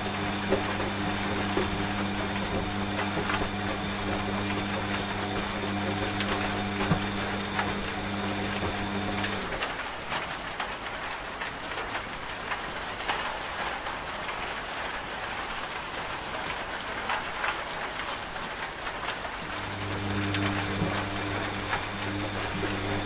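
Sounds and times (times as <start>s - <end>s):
washing machine motor hum: 0.0s - 9.7s, 19.4s - 23.0s
steady rain: 0.0s - 23.0s.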